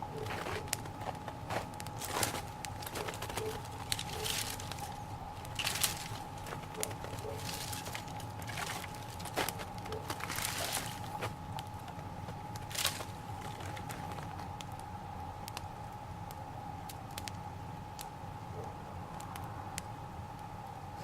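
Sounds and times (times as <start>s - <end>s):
small fire crackling and popping: 0.0s - 21.0s
flames rushing: 0.4s - 14.9s.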